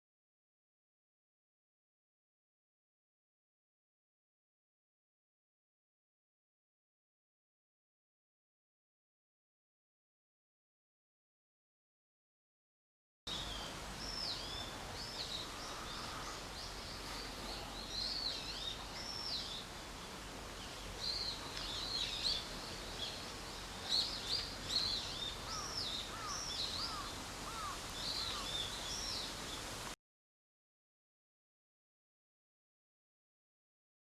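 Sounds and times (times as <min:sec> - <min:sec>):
small birds singing: 0:13.3 - 0:29.8
steady background hiss: 0:13.3 - 0:30.0.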